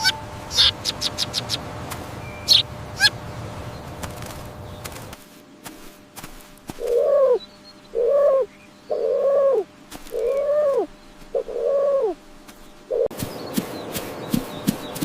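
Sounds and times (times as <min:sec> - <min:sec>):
bird calls dropping in pitch: 0:00.0 - 0:01.6.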